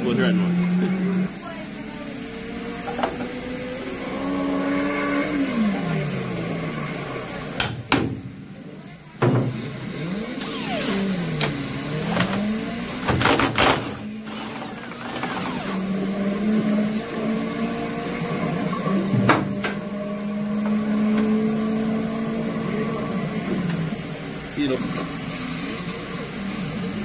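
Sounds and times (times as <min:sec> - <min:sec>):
sharp knocks against metal: 0:07.6 - 0:08.3
electric power tool motor: 0:09.6 - 0:19.0.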